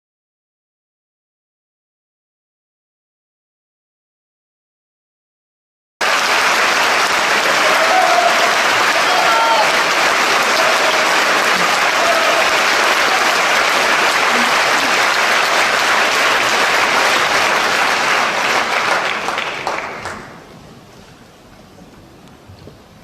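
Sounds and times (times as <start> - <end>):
audience applauding: 6.0 - 20.5.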